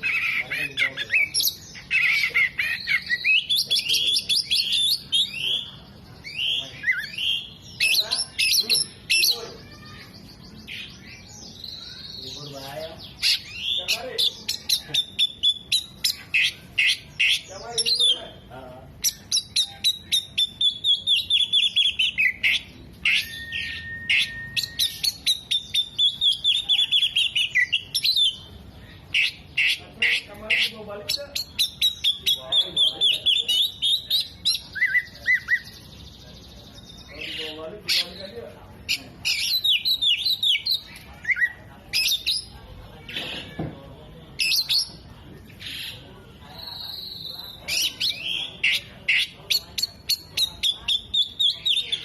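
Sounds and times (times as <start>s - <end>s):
songbird chirping: 0.0s - 52.0s
bird singing chirps and whistles: 19.0s - 28.5s, 31.3s - 35.9s
long level bird whistle: 23.2s - 27.5s.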